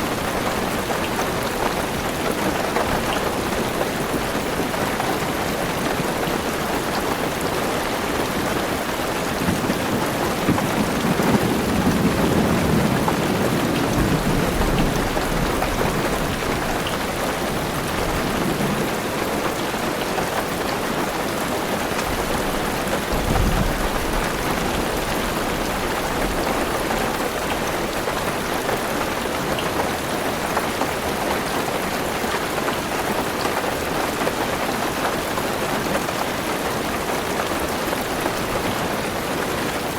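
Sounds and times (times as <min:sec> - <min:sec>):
heavy rain on car roof: 0:00.0 - 0:39.9
thunder rumbling: 0:09.2 - 0:19.0, 0:22.1 - 0:27.0.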